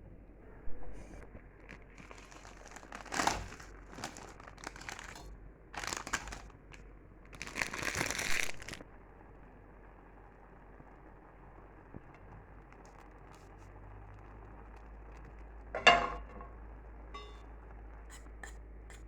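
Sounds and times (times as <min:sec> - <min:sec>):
crinkling and rustling: 0:01.0 - 0:08.8.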